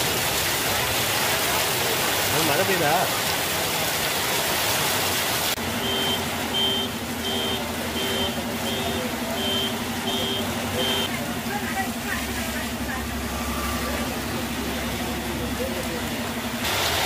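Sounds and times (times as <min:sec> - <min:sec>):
heavy rain: 0:00.0 - 0:17.0
light rain: 0:00.0 - 0:17.0
engine idling: 0:05.6 - 0:17.0
reversing alarm beeping: 0:05.7 - 0:11.1.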